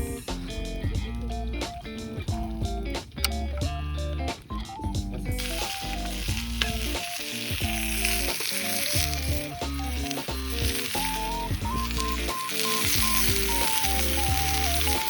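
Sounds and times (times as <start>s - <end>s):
background music: 0.0s - 15.0s
food sizzling in a hot pan: 5.4s - 15.0s.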